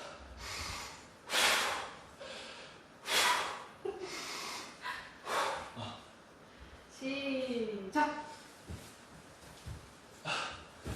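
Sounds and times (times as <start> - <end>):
man breathing hard: 0.0 - 6.8, 10.2 - 10.9.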